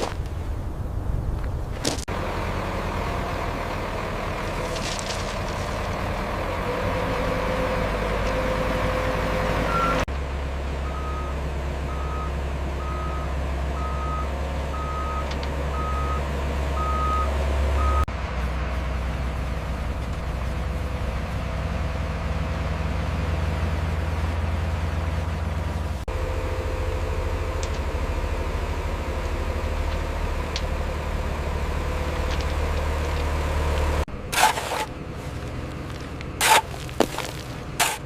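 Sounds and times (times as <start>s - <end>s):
heavy diesel machinery running: 2.0s - 38.0s
reversing alarm beeping: 9.6s - 10.1s, 10.8s - 18.1s.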